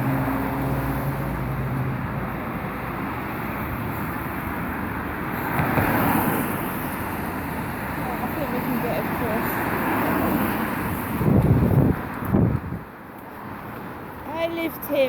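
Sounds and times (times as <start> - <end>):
vehicle engine hum: 0.0 - 5.6
vehicle passing: 0.0 - 12.8.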